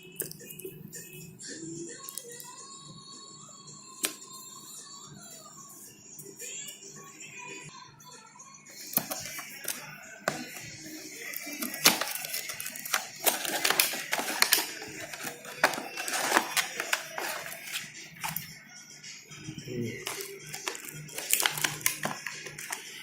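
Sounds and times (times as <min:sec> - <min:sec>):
packaging crinkling and rustling: 0:09.0 - 0:18.5, 0:20.0 - 0:23.0.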